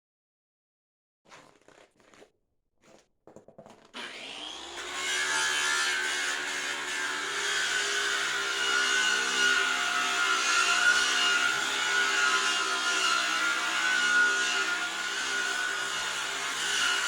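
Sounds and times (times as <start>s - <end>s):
power tool whine: 4.0s - 17.0s.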